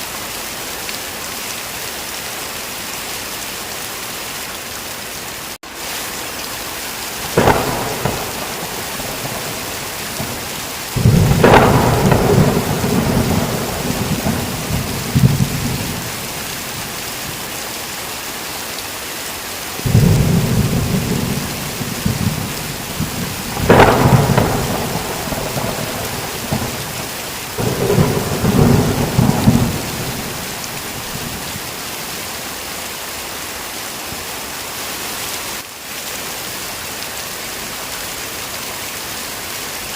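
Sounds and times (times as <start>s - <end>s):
heavy rain falling: 0.0s - 39.9s
thunder cracking and rolling: 7.2s - 17.0s, 19.8s - 31.6s.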